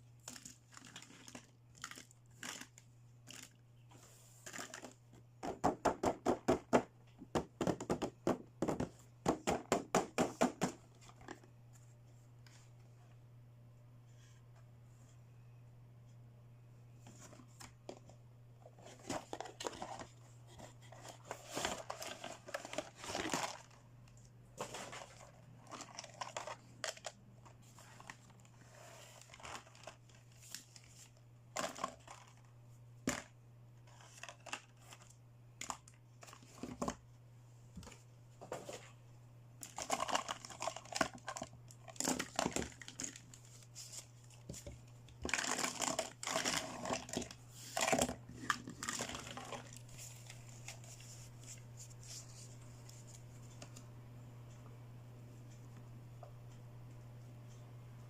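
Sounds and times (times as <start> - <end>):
steady low hum: 10.8 - 58.0
plastic packaging crinkling and tearing: 21.6 - 23.8, 39.6 - 43.6.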